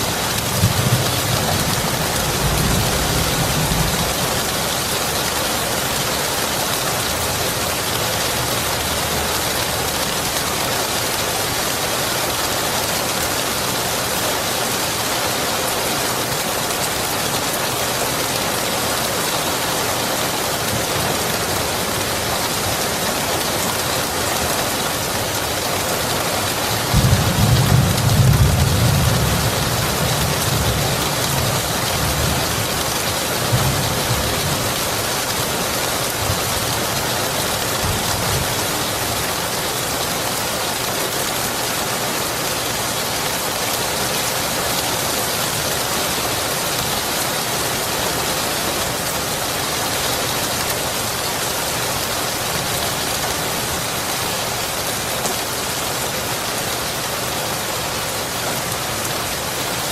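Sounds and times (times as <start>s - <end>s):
steady rain falling: 0.0s - 59.9s
low thunder rumble: 0.5s - 4.8s.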